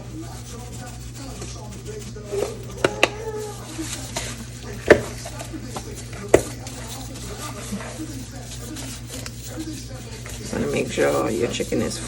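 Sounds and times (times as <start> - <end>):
kitchen room noise: 0.0 - 12.0.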